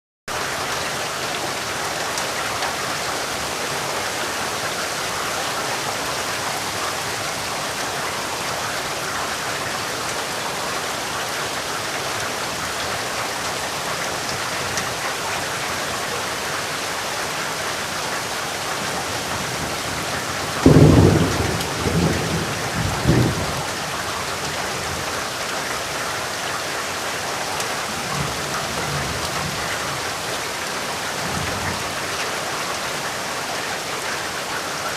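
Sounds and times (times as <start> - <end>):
heavy rainfall: 0.3 - 34.9
thunder clap and rumbles: 18.8 - 23.9.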